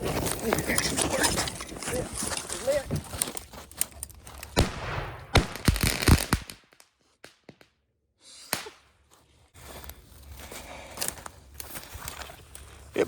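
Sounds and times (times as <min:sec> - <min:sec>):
firework bangs: 0:04.6 - 0:06.8.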